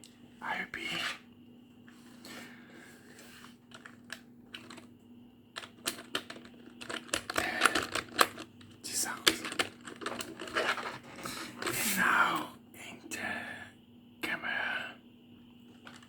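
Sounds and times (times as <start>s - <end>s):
keyboard keys clicking: 5.6s - 8.5s.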